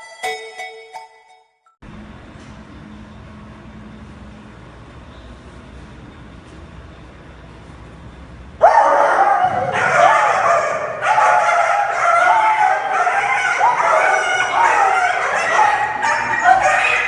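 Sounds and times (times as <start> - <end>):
dog-like whining and yelping: 9.2 - 17.0.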